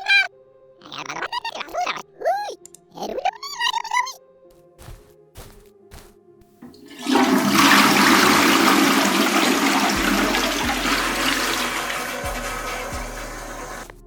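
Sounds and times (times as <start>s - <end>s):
toilet flushing water rush: 6.6s - 13.9s.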